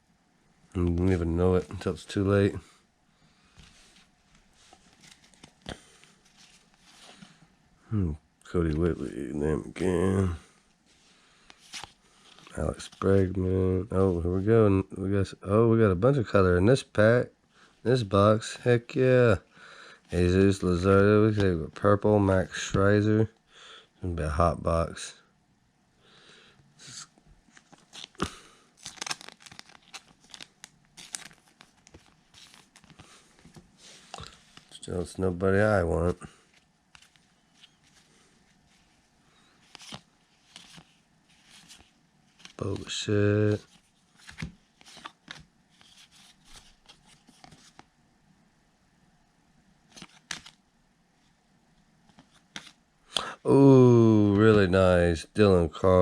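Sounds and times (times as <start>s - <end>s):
cards rustling: 3.5s - 7.4s, 11.4s - 14.4s, 20.1s - 21.8s, 27.4s - 47.9s, 49.9s - 50.6s, 52.0s - 53.3s
cards clicking: 49.9s - 50.6s.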